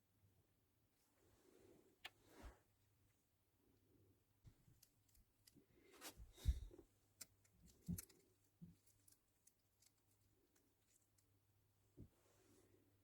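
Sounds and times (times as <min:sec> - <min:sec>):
small parts clicking: 0:04.7 - 0:05.6, 0:07.2 - 0:11.3.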